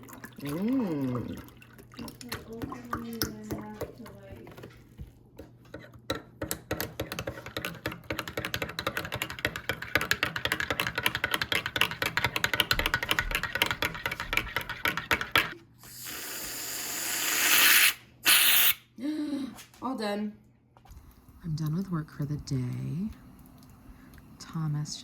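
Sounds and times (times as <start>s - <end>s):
fast typing on keyboard: 7.6s - 15.6s
hiss: 15.9s - 18.8s.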